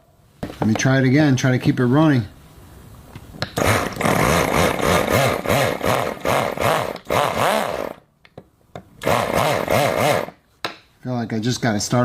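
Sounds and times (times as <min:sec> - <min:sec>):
miniature engine firing unevenly: 0:03.6 - 0:08.0, 0:09.0 - 0:10.3.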